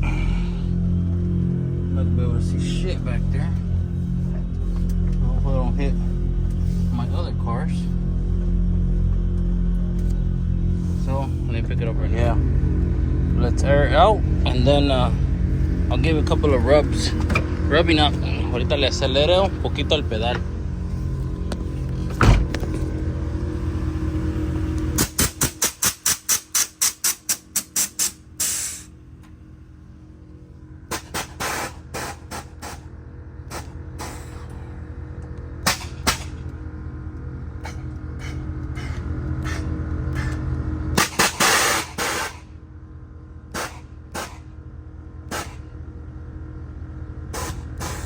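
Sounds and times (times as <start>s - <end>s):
car engine idling: 0.0s - 25.2s
air suspension hissing: 25.0s - 28.9s, 30.9s - 32.9s, 33.5s - 34.7s, 41.0s - 42.5s, 43.5s - 44.5s, 47.3s - 48.0s
short hissing bursts: 27.8s - 28.9s.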